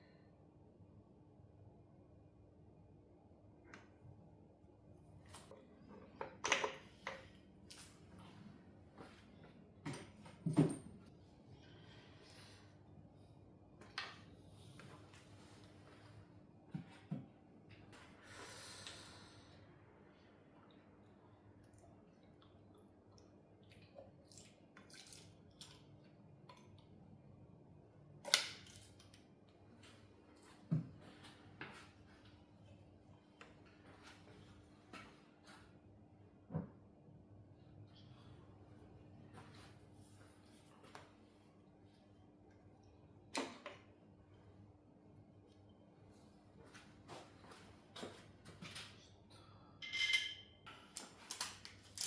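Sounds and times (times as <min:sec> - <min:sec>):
metal tools clinking: 0:49.8 - 0:50.5.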